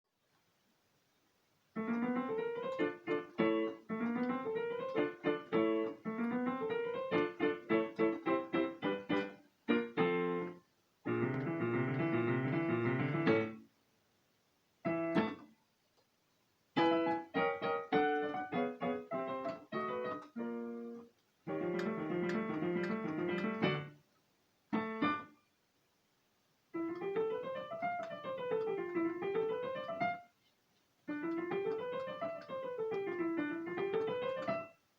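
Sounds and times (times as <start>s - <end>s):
piano playing: 1.8s - 13.6s, 14.9s - 15.5s, 16.8s - 24.0s, 26.7s - 30.3s, 31.1s - 34.8s.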